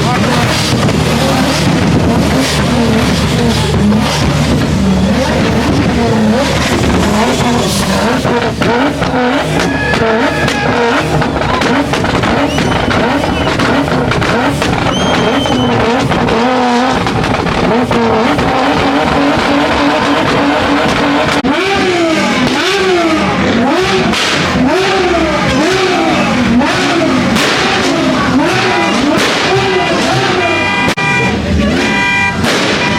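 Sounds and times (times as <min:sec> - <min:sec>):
car engine revving: 0:00.0 - 0:32.9.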